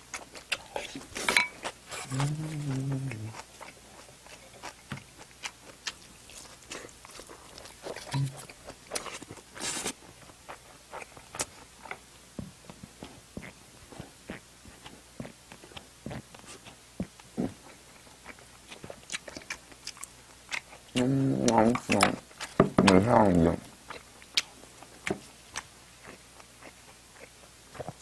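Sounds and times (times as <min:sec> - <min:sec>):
chewing and mouth smacks: 0:00.0 - 0:12.0, 0:12.6 - 0:28.0
person humming mm: 0:01.9 - 0:03.4, 0:21.0 - 0:22.2.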